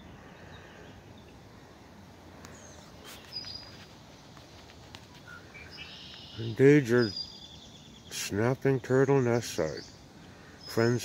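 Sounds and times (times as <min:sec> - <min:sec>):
faint bird chirps: 0:05.1 - 0:11.0.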